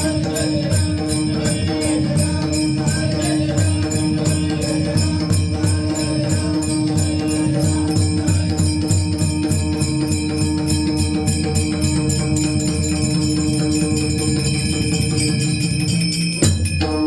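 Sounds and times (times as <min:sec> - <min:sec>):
metallic jingling: 0:00.0 - 0:17.0.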